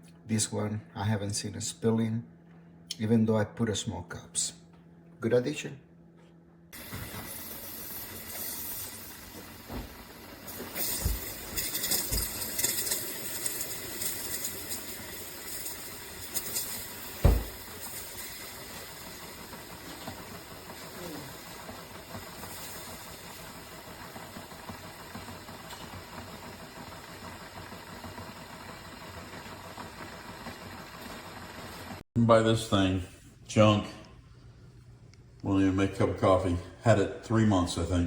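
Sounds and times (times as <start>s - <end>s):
coffee maker running noise: 6.7s - 32.0s
coffee maker hissing and spluttering: 6.8s - 32.0s
sharp thump: 17.2s - 17.6s.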